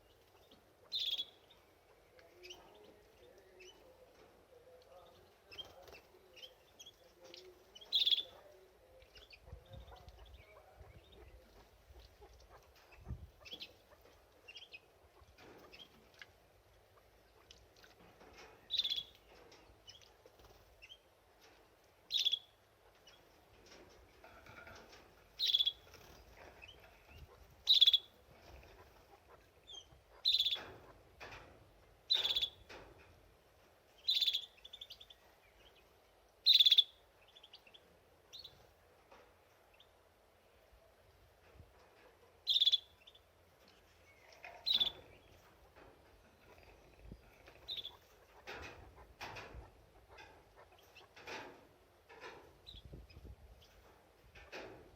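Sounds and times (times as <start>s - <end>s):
soft bird twittering: 0.0s - 4.0s, 4.6s - 14.9s, 18.7s - 20.1s, 22.1s - 23.3s, 25.4s - 28.9s, 29.6s - 30.7s, 32.1s - 32.6s, 34.0s - 38.6s, 42.4s - 45.4s, 46.3s - 48.2s
canary chirping: 0.0s - 21.2s, 22.0s - 32.8s, 33.9s - 38.7s, 42.4s - 54.0s.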